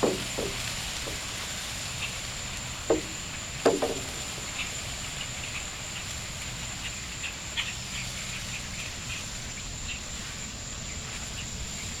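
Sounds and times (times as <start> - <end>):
birds chirping: 2.9 - 5.7.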